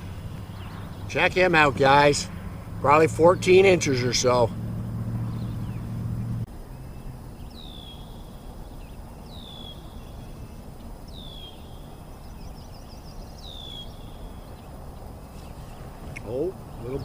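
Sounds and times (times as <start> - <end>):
low steady background noise: 0.0 - 17.0
bird whistling call: 7.5 - 8.2, 8.8 - 14.7.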